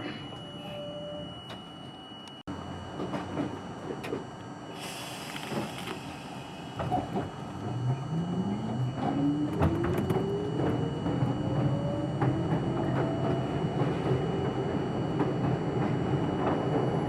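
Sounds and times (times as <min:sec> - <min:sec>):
air hiss: 0:04.7 - 0:07.2
traction motor whine: 0:04.7 - 0:15.0.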